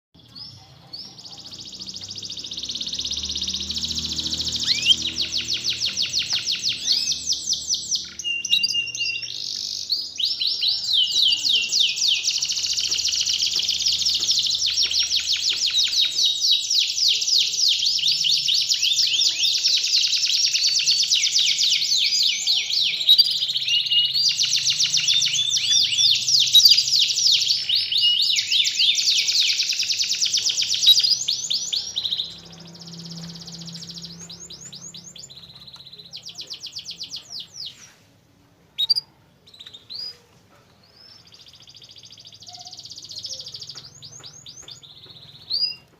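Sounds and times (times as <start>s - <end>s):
canary chirps: 0.1s - 45.9s
canary singing trills: 0.2s - 38.0s, 38.7s - 45.9s.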